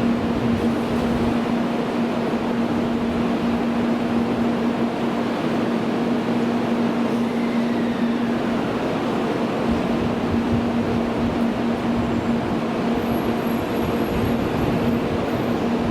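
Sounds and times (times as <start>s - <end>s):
faint falling whistle: 7.2s - 8.4s.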